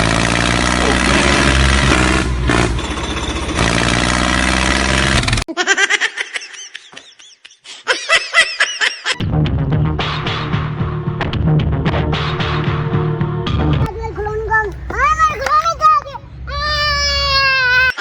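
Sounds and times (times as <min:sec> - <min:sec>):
motor engine running: 0:00.0 - 0:05.4, 0:13.8 - 0:17.9.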